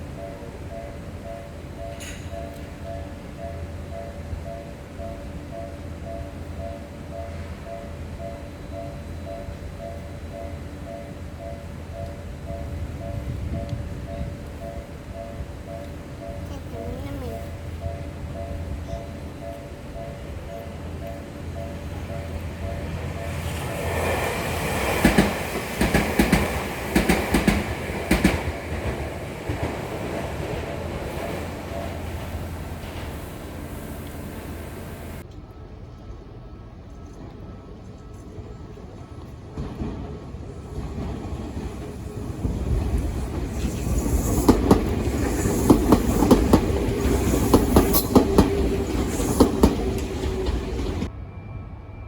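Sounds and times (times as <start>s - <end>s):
electric train running noise: 0.0s - 52.0s
train wheels clacking over rail joints: 18.8s - 35.2s, 39.6s - 51.1s.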